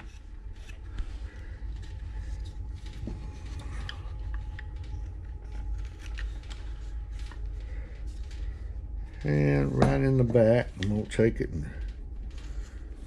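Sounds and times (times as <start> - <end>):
knife scraping wood: 0.0 - 1.1
steady low rumble: 0.0 - 13.0.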